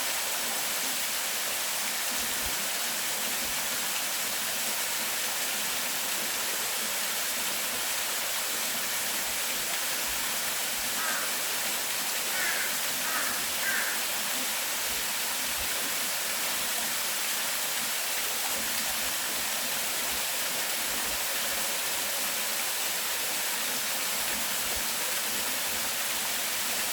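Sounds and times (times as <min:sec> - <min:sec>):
rushing water: 0:00.0 - 0:26.9
bird calling: 0:12.3 - 0:14.0.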